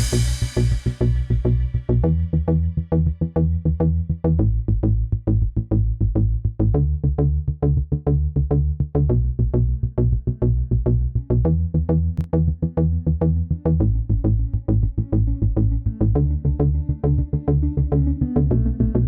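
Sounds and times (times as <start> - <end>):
fast drum-machine beat: 0.0 - 1.2
synthesizer bass line: 0.0 - 19.0.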